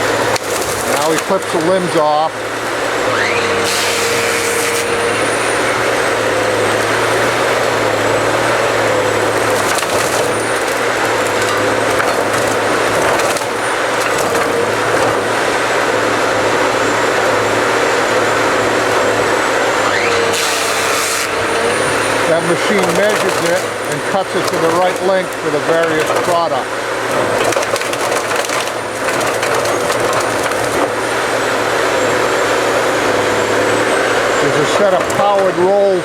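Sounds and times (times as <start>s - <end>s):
harvester engine and hydraulics: 0.0s - 36.0s
hydraulic whine: 0.0s - 36.0s
limbs cracking and splintering: 0.2s - 1.9s, 9.3s - 15.3s, 22.2s - 31.0s.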